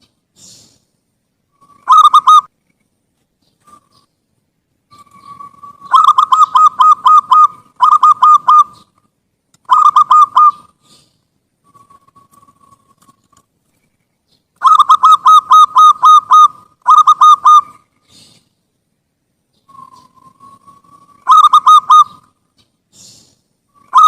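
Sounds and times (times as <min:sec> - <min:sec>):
dove cooing: 0:01.6 - 0:02.5, 0:04.9 - 0:09.0, 0:09.7 - 0:13.2, 0:14.6 - 0:18.4, 0:19.7 - 0:22.3, 0:23.0 - 0:24.0.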